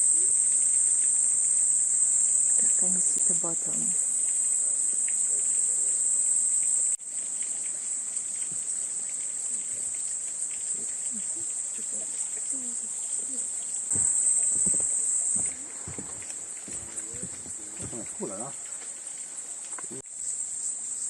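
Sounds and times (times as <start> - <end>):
shrill insect chorus: 0.0 - 21.0
faint voices: 2.6 - 4.0, 10.7 - 20.0.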